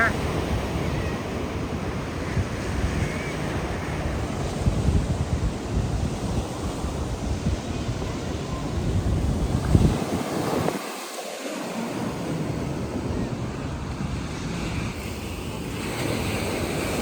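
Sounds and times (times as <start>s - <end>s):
wind buffeting microphone: 0.0s - 11.1s
ocean surf washing on beach: 0.0s - 17.0s.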